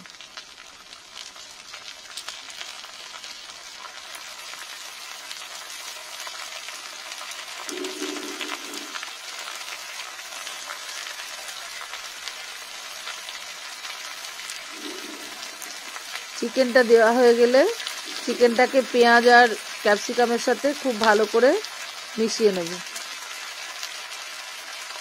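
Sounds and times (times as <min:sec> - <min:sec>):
food sizzling in hot oil: 0:00.0 - 0:25.0
small crackles: 0:00.0 - 0:25.0
low hum: 0:07.7 - 0:09.0.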